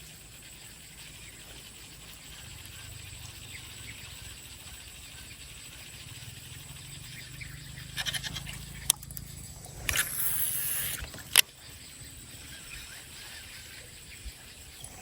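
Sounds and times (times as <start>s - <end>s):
line whirring off spool: 5.9s - 11.6s
fishing reel clicking: 7.9s - 11.5s.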